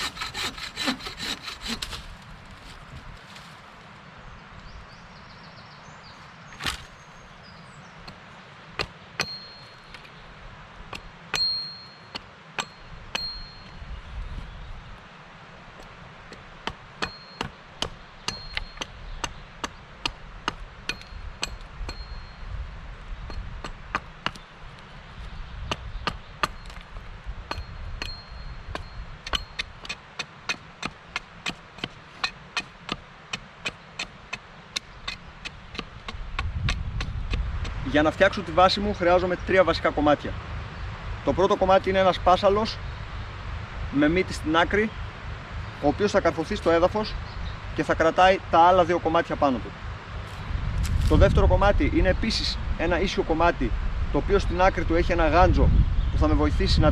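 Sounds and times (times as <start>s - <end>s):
blade chopping wood: 6.6s - 7.0s, 8.8s - 10.1s, 16.3s - 22.0s, 25.7s - 37.8s
high metallic ring: 9.2s - 9.9s, 11.4s - 13.8s, 17.0s - 17.5s, 21.0s - 22.5s, 27.5s - 29.6s.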